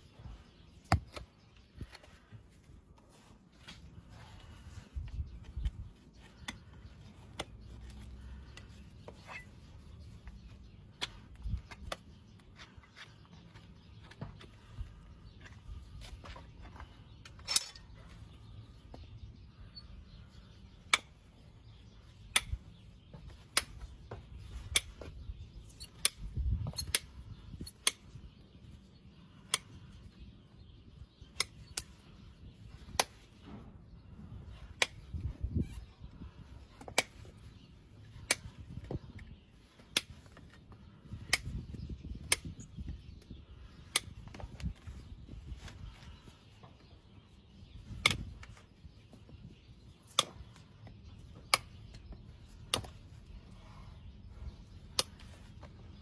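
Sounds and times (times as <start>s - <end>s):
tools cutting horse hoof: 25.7s - 28.1s, 51.3s - 53.1s, 54.9s - 55.7s.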